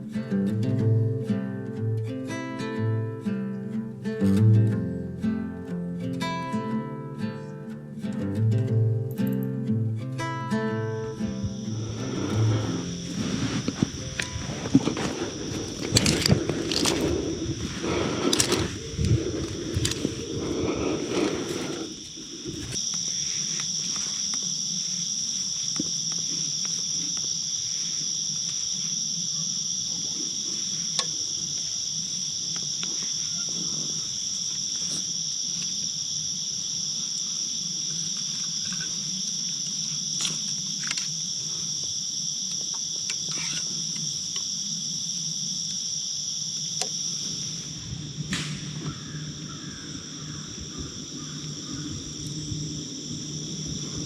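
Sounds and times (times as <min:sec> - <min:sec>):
night insects trilling: 0:00.0 - 0:54.0
brief rustle: 0:11.9 - 0:22.8.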